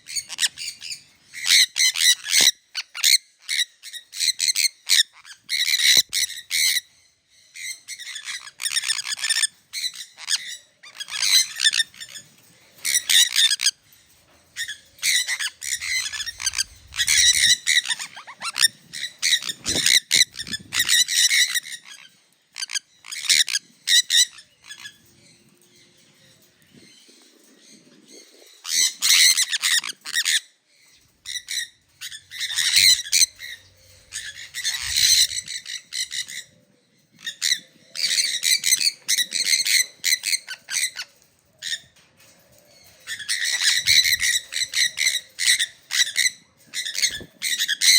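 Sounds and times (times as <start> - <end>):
parrots screeching: 0.1 - 6.9, 14.6 - 22.0, 31.3 - 36.5, 42.9 - 47.9.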